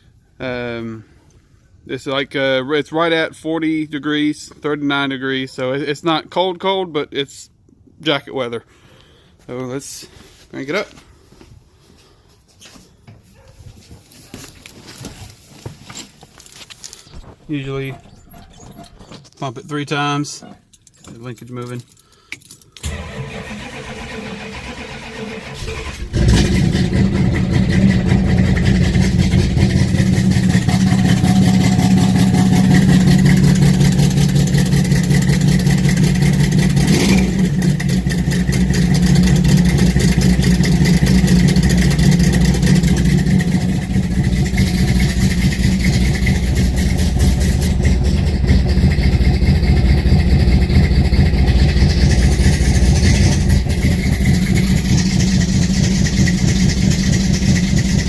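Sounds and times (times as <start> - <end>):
car engine starting and idling: 20.7 - 58.0.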